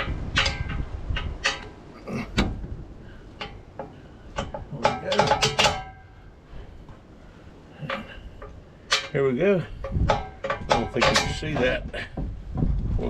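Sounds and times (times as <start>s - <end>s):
metal tools clinking: 3.4s - 6.2s, 7.8s - 11.8s.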